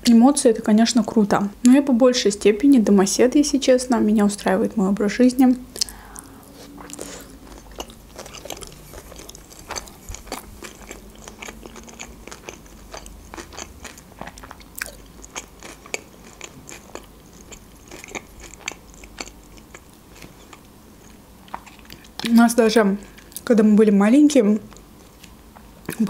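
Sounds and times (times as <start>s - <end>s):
chewing crunchy food: 5.8s - 22.3s.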